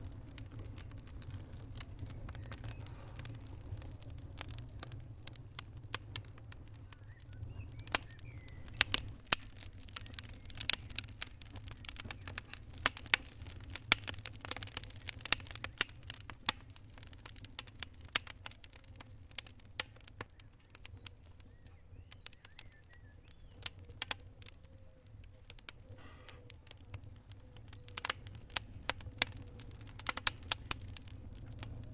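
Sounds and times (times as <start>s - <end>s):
low steady rumble: 0.0s - 15.5s, 26.8s - 31.9s
fire crackling and popping: 0.0s - 31.9s.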